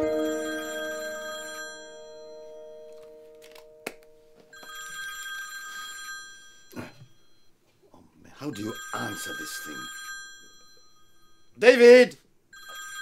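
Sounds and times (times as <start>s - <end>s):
held music chord: 0.0s - 4.4s
telephone bell ringing: 0.0s - 7.5s, 8.6s - 11.5s, 12.5s - 13.0s.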